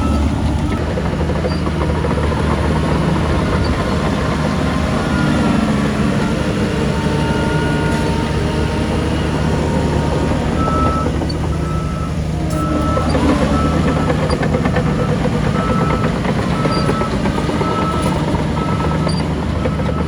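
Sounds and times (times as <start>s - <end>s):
diesel machinery running: 0.0s - 20.0s
reversing alarm beeps: 4.9s - 20.0s.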